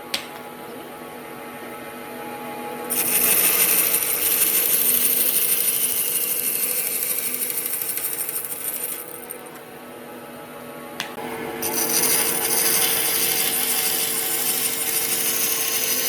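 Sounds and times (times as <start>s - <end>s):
power tool whining on wood: 2.9s - 9.6s, 11.4s - 16.0s.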